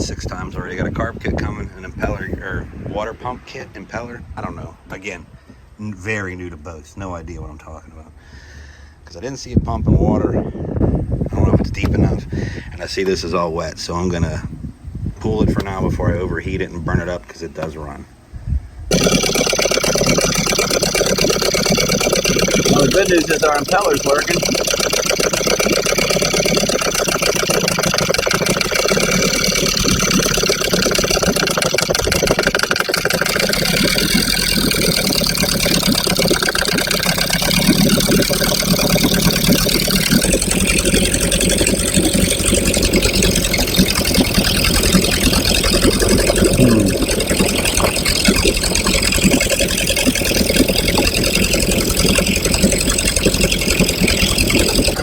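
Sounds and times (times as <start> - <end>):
outboard motor running: 18.9 - 55.0.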